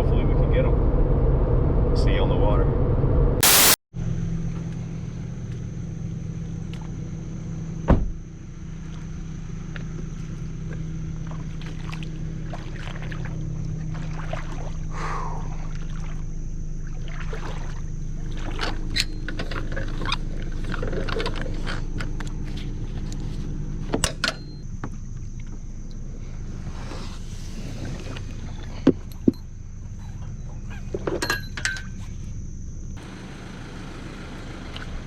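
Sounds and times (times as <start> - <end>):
steady low hum: 0.0 - 35.0
brief loud burst: 3.4 - 3.8
thump: 7.9 - 8.2.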